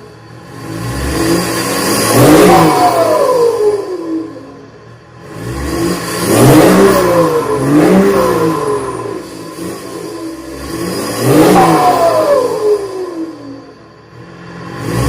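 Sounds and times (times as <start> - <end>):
diesel car engine revving: 0.0 - 15.0.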